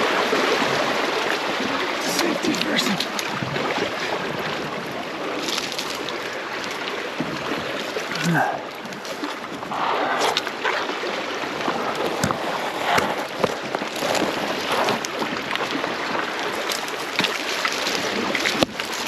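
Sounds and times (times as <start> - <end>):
river water rushing: 0.0 - 19.0
sharp splashes and knocks: 5.2 - 19.0.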